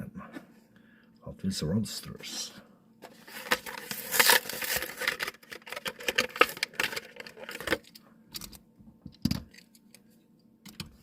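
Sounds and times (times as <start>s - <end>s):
plastic packaging crackling: 3.1s - 7.9s.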